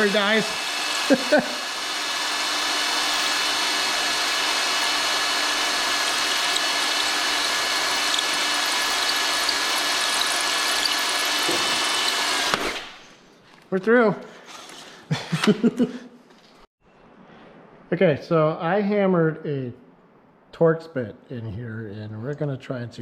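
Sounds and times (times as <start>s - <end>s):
power drill boring through metal: 0.0s - 13.0s.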